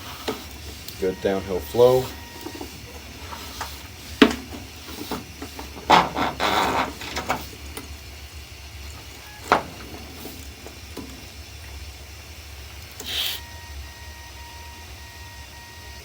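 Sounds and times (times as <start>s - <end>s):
scraping and rustling: 1.6s - 7.6s.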